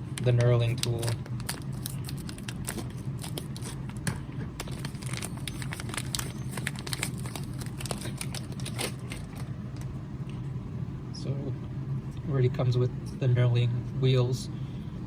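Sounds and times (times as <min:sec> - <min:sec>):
low steady hum: 0:00.0 - 0:15.0
plastic packaging crinkling: 0:00.2 - 0:09.5.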